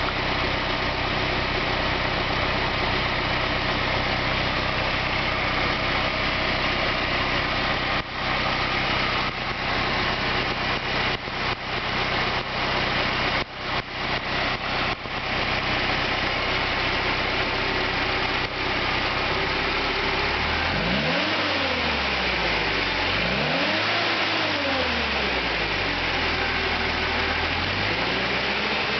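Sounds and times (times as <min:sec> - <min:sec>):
petrol engine idling and revving: 0:00.0 - 0:28.9.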